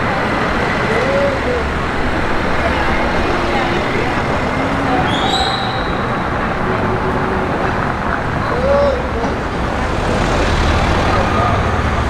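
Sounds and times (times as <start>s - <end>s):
faint voices: 0.0s - 12.0s
passing vehicles: 0.0s - 12.0s.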